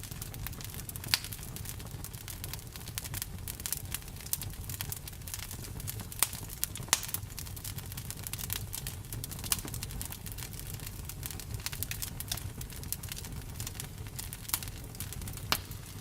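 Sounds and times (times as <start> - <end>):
low rumble of flames: 0.0 - 16.0
wood crackling and popping: 0.0 - 16.0.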